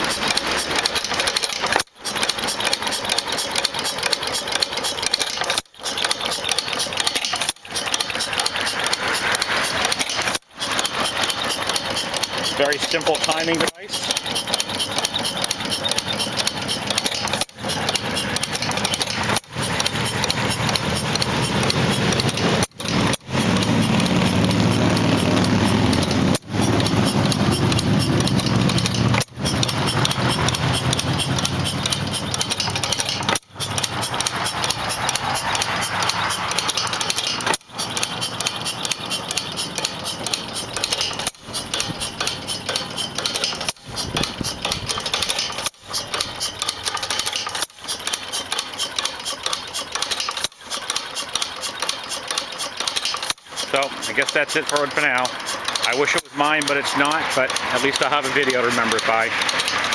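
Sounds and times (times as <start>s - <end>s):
hit-and-miss engine running: 0.0s - 59.9s.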